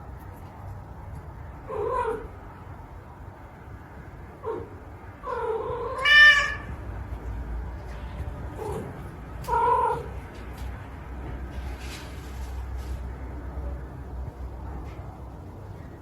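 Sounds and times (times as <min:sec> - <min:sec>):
cat meowing: 0:05.2 - 0:06.8.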